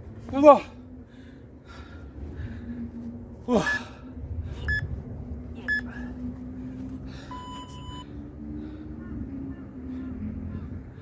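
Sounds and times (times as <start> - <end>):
workout timer beeping: 5.6 - 5.9, 7.3 - 8.0.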